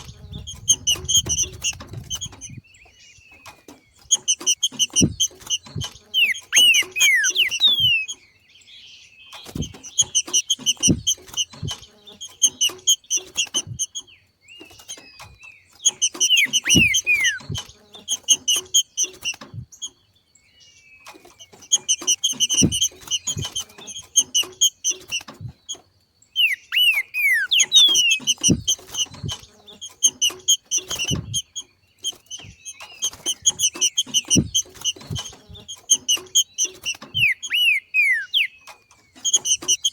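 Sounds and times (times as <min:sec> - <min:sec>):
bird chattering call: 0:04.1 - 0:08.2, 0:15.9 - 0:19.4, 0:26.4 - 0:39.9.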